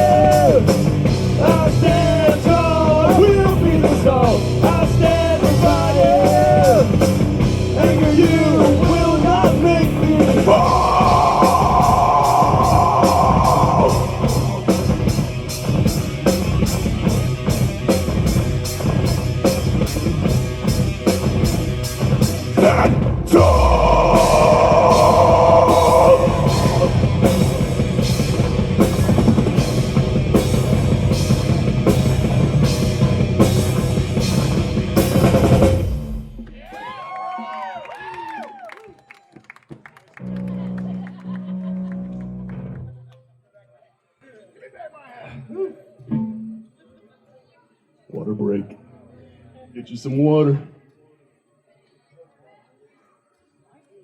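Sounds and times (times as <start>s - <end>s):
guitar pitch dive: 0.0s - 19.2s, 21.3s - 36.6s, 46.0s - 46.8s
metal band playing: 0.0s - 36.6s
melodic guitar lead: 46.0s - 46.8s.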